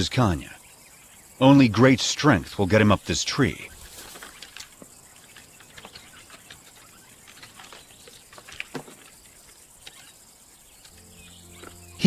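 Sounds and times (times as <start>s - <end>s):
claws scratching tree bark: 3.8s - 10.1s.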